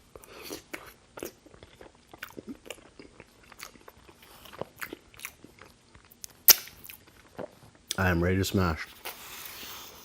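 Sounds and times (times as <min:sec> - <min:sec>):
close chewing with mouth smacks: 0:00.1 - 0:08.0.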